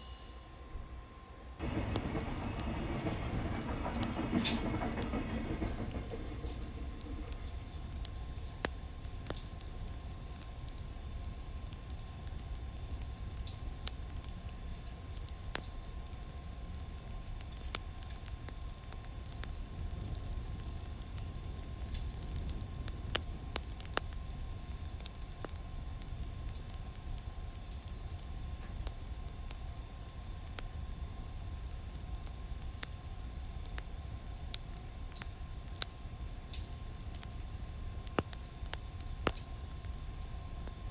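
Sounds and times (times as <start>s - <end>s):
faint steady whine: 0.0s - 40.9s
low rumble: 1.6s - 9.4s
wood fire crackling and popping: 1.6s - 40.9s.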